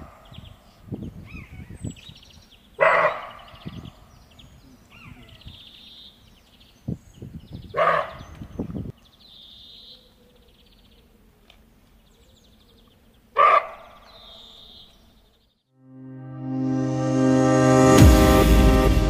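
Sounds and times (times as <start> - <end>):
bark-like animal calls: 2.8 - 3.6, 7.7 - 8.2, 13.4 - 14.6
low rumble: 16.1 - 19.0.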